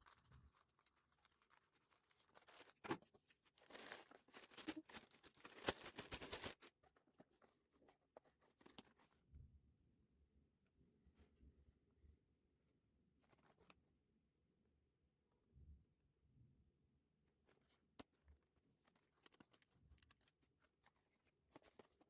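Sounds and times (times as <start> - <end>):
clicks of objects handled: 18.9 - 20.4.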